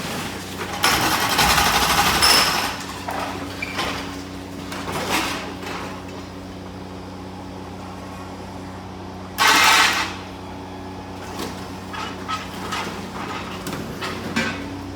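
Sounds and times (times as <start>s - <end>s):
demolition machinery engine hum: 0.0s - 14.9s.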